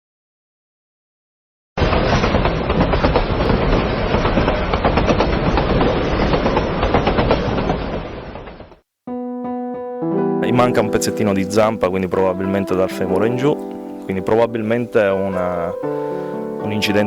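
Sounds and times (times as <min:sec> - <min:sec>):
train wheels clattering on rails: 0:01.8 - 0:08.8.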